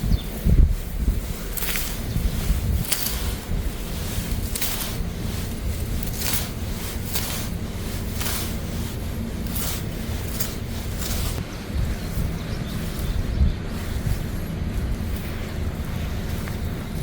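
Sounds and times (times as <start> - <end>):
wind rumbling on microphone: 0.0 - 17.0
plant stems tearing: 1.0 - 11.4.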